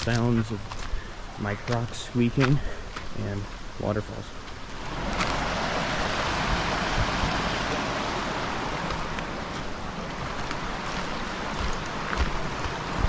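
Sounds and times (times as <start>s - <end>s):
waterfall rushing: 4.4s - 13.0s.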